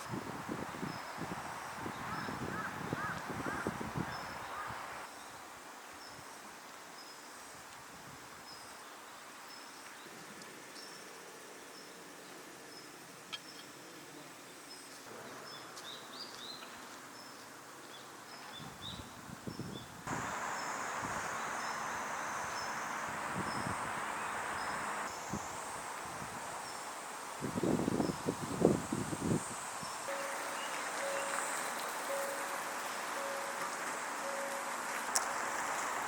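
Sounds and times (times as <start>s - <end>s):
birds: 14.5s - 25.4s, 29.8s - 36.0s
grass insects: 20.0s - 36.0s
short high chirp: 30.1s - 34.7s.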